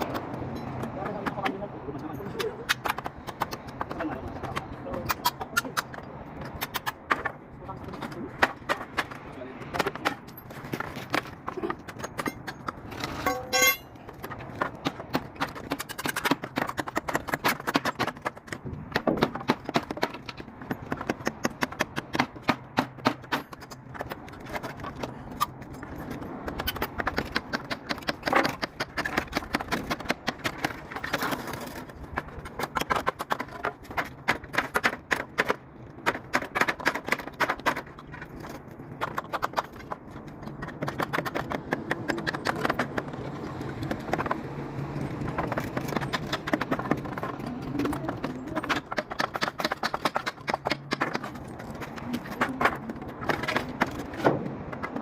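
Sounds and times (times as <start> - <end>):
rapid sharp knocks and clicks: 14.3 - 24.6, 26.5 - 31.1, 45.2 - 52.0.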